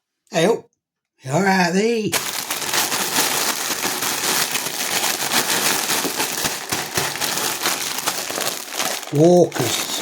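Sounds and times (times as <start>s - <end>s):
plastic bag crinkling: 2.1s - 10.0s.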